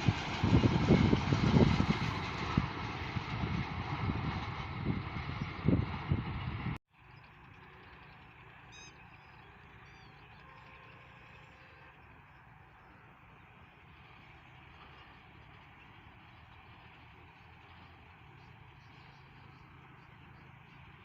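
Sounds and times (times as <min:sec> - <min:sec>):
loud rumbling train: 0:00.0 - 0:21.0
faint bird chirps: 0:07.1 - 0:13.6.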